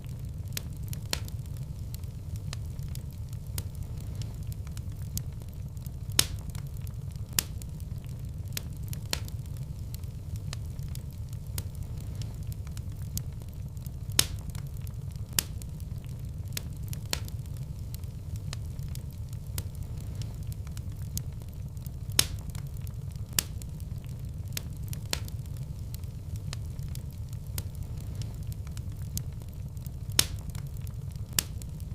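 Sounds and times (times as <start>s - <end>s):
wood fire crackling and popping: 0.0s - 31.9s.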